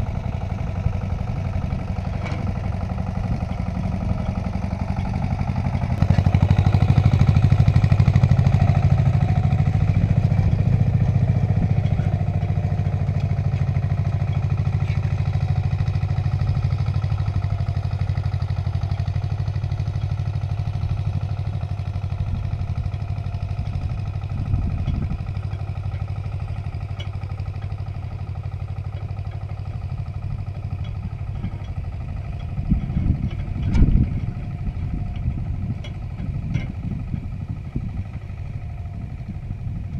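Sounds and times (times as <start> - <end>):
tractor engine running under load: 0.0 - 39.9
knocks and clatter: 18.5 - 38.0.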